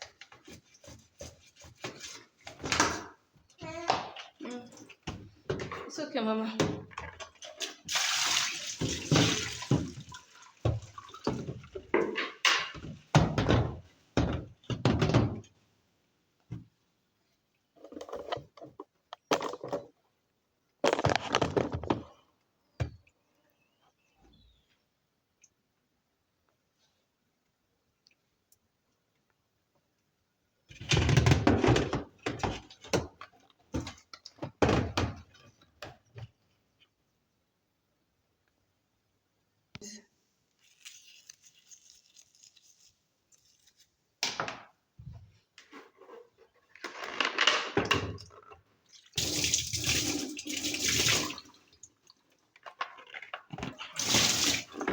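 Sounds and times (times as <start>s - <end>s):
hard objects clattering and knocking: 8.8s - 15.5s, 20.8s - 22.2s, 45.6s - 48.6s.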